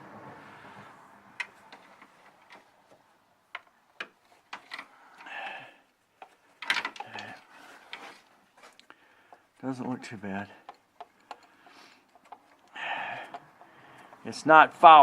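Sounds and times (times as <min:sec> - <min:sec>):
tools clicking and tapping: 0:03.5 - 0:05.6, 0:06.2 - 0:08.0, 0:10.5 - 0:14.3.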